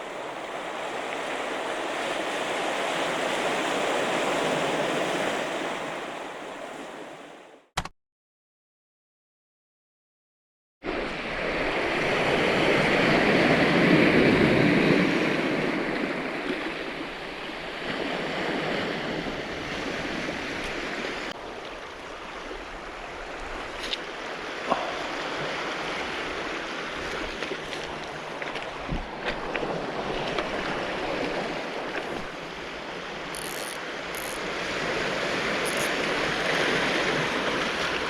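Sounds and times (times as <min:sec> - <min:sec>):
sea waves washing onto stone beach: 0:10.9 - 0:38.0
small clicks: 0:33.3 - 0:34.4, 0:35.6 - 0:36.0.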